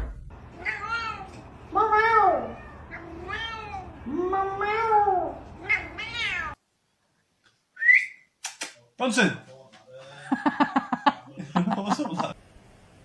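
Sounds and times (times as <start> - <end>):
cat meowing: 0.6 - 6.6.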